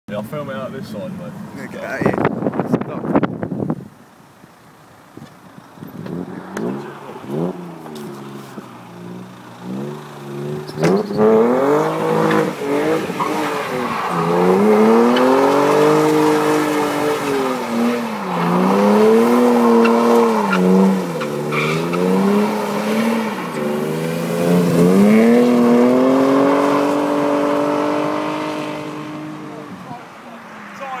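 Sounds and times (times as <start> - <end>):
car engine revving hard: 6.0 - 29.8
tyres squealing: 10.3 - 28.2.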